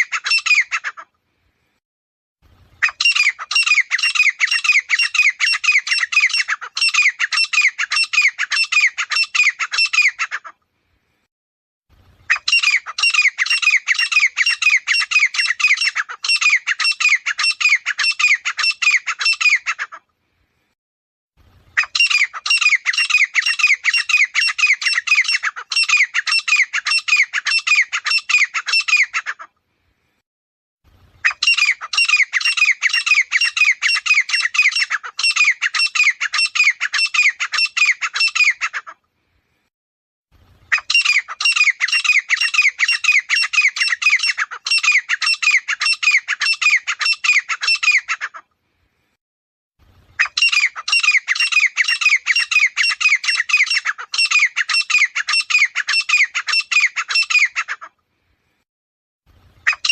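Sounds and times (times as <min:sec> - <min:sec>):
bird calling harshly: 0:00.0 - 0:01.1, 0:02.8 - 0:10.6, 0:12.2 - 0:20.0, 0:21.7 - 0:29.5, 0:31.2 - 0:39.0, 0:40.7 - 0:48.5, 0:50.2 - 0:58.0, 0:59.6 - 0:59.9.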